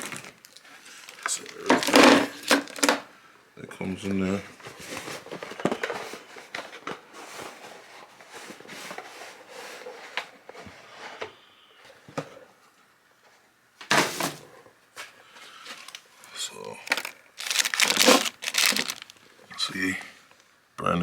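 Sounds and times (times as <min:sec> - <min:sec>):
packaging crinkle: 0:00.0 - 0:03.0, 0:16.8 - 0:19.3
packaging rustling: 0:00.0 - 0:03.0, 0:15.6 - 0:19.3.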